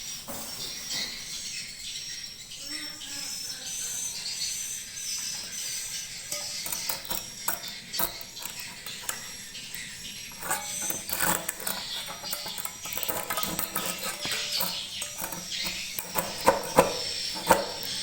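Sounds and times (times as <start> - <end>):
swiftlets chirping: 4.9 - 18.0
sharp irregular clicks: 10.4 - 18.0.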